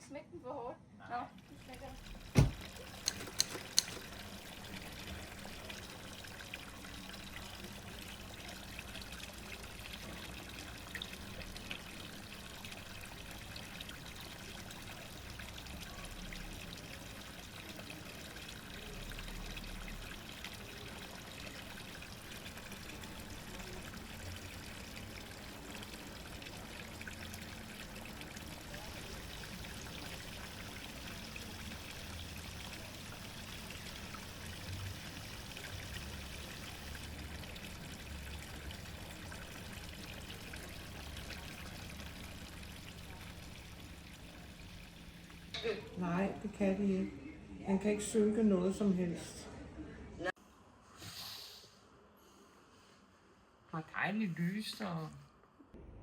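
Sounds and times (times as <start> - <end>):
rushing trickling water: 1.3 - 45.6
door slamming shut: 2.4 - 2.7.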